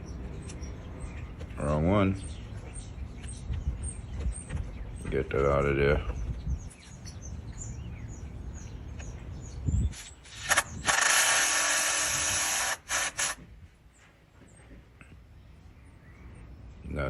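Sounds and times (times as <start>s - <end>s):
cordless drill driving screw: 10.3s - 13.4s.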